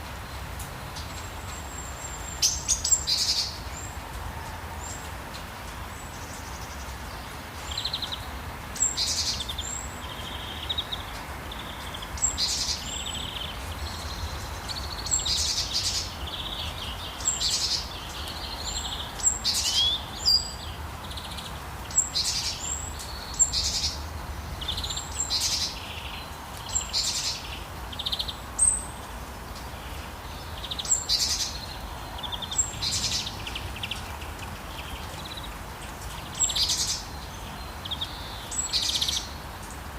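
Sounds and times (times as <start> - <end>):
wild birds chirping and calling: 30.4 - 39.4.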